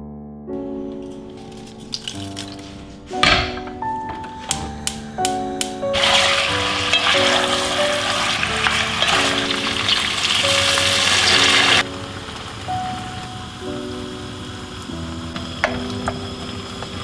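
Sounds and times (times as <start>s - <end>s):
background music: 0.0s - 17.0s
wooden spoon stirring: 0.9s - 3.2s
chicken wings sizzling in a pot: 5.9s - 17.0s.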